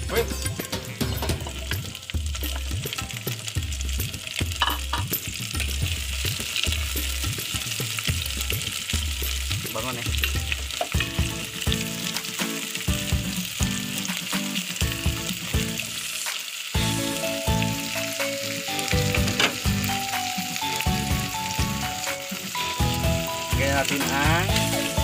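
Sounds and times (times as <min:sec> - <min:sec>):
background music: 0:00.0 - 0:25.0
shrimp sizzling in a pot: 0:00.0 - 0:25.0.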